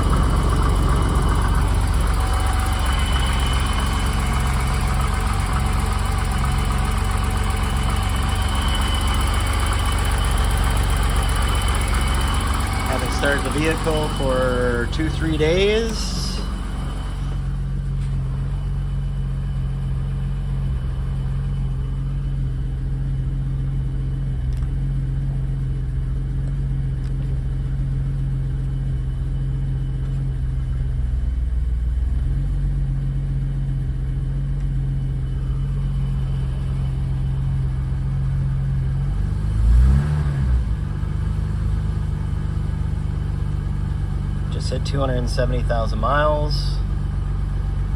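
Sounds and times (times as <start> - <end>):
engine revving: 0.0 - 17.7, 38.8 - 42.2, 43.8 - 47.0
car engine idling: 0.0 - 47.9.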